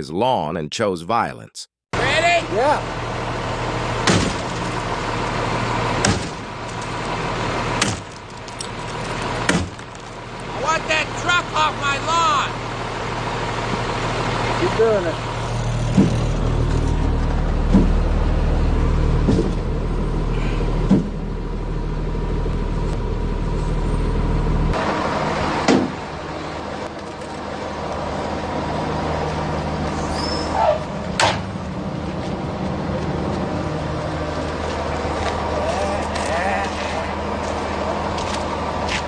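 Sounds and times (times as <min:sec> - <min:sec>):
truck engine running: 0:02.0 - 0:39.0
sharp knocks: 0:17.7 - 0:18.0, 0:19.2 - 0:19.6, 0:20.9 - 0:21.2.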